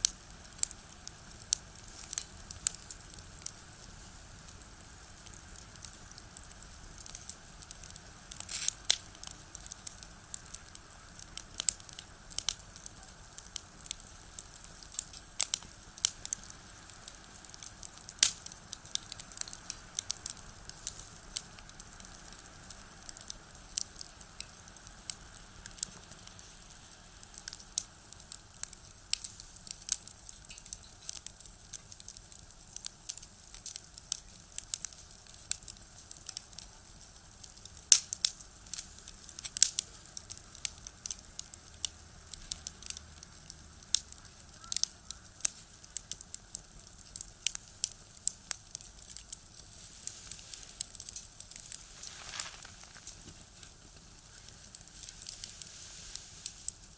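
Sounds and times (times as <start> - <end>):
wood fire crackling and popping: 0.0 - 56.9.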